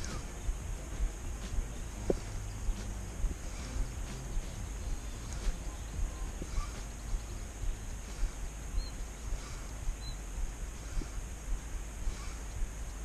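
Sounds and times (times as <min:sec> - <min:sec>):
faint bird chirps: 0:00.0 - 0:13.0
low rumble: 0:00.0 - 0:13.0
steady high hiss: 0:00.0 - 0:13.0.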